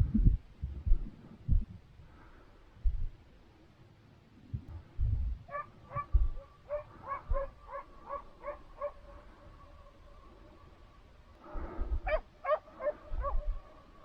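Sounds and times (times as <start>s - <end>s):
low thumps: 0.0s - 1.8s, 4.5s - 6.4s
dog yelping: 5.5s - 9.2s, 12.1s - 13.6s.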